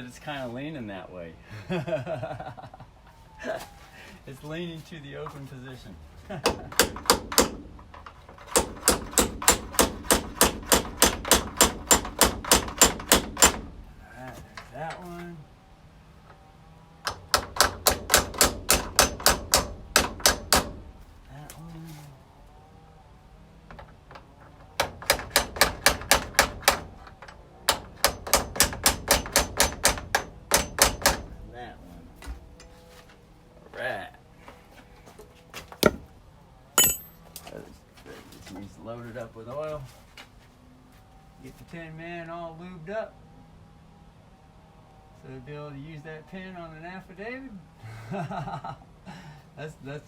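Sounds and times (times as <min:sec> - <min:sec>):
hammer tapping on metal: 0:06.4 - 0:13.7, 0:17.0 - 0:20.8, 0:23.7 - 0:31.4, 0:36.8 - 0:37.2.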